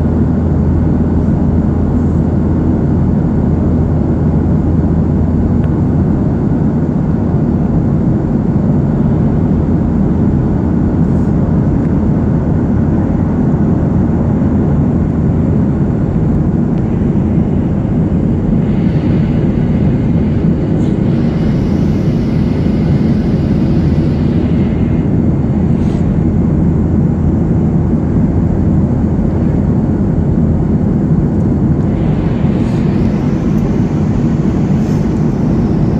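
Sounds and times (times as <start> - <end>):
aircraft engine drone: 0.0 - 35.9
high hiss: 16.9 - 26.2, 31.8 - 35.9.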